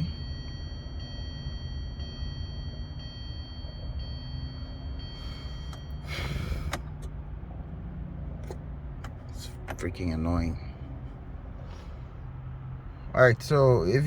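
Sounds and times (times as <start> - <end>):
person sighing: 6.0 - 6.8.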